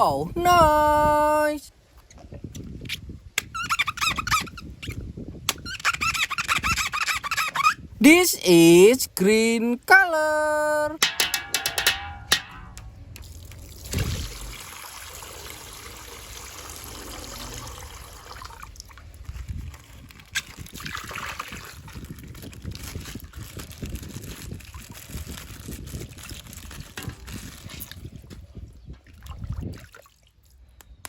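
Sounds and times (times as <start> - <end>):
water pouring from plastic bag: 13.3 - 28.3
wet plastic bag handled: 19.1 - 28.6.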